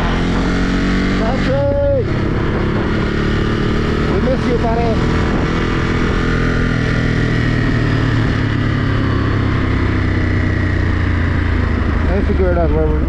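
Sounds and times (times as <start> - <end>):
motorcycle engine idling: 6.8 - 13.0.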